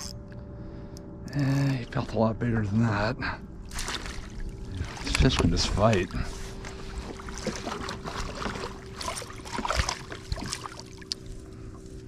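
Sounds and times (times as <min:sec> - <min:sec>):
faint steady hum: 0:00.0 - 0:12.0
water splashing: 0:03.7 - 0:11.3.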